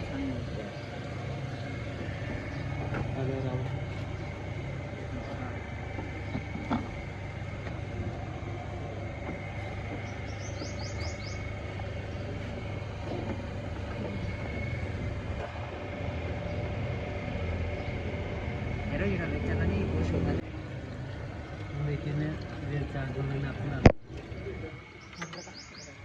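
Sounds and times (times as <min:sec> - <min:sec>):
faint whine: 0:00.0 - 0:26.0
low mechanical hum: 0:00.0 - 0:26.0
bird chirping: 0:09.6 - 0:12.3, 0:24.9 - 0:26.0.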